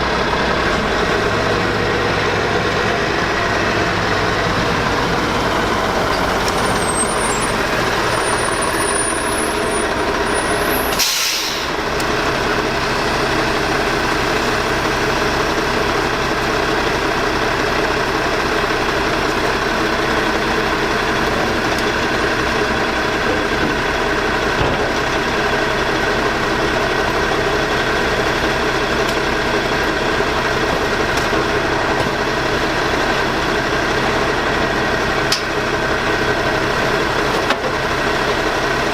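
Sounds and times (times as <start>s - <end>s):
garbage truck diesel engine running: 0.0s - 38.9s
air brake hiss: 10.8s - 11.8s.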